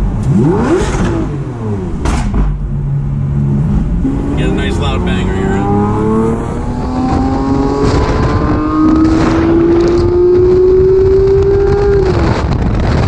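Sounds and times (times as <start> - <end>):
sports car engine accelerating: 0.0 - 13.0.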